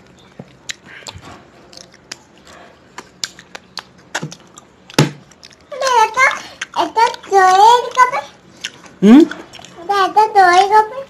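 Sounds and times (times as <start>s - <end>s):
person chewing with wet mouth clicks: 0.2s - 5.6s, 6.6s - 7.3s, 8.6s - 9.8s.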